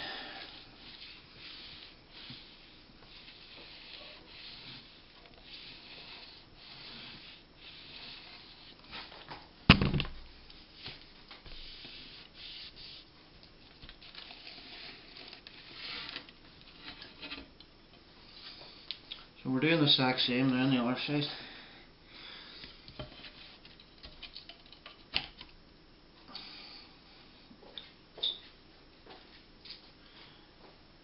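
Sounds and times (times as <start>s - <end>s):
rubbing and handling noises: 0.0s - 19.1s.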